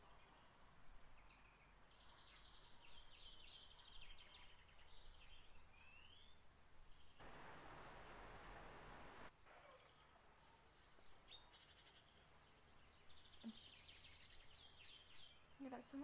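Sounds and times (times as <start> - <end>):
faint birdsong: 0.0 - 16.0
soft even hiss: 7.2 - 9.3.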